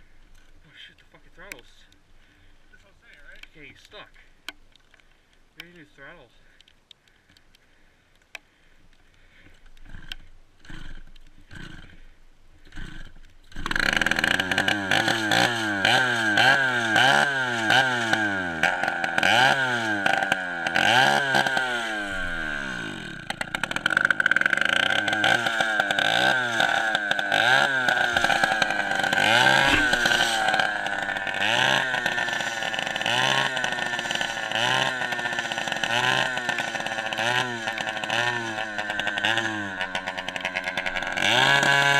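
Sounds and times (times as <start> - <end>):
dirt bike engine revving: 9.8 - 41.9.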